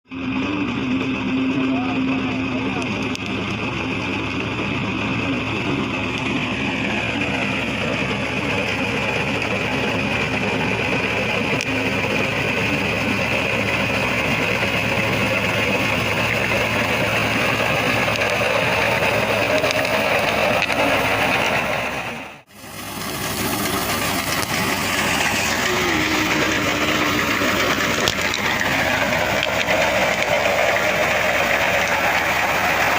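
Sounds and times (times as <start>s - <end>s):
tractor engine running: 0.0s - 32.9s.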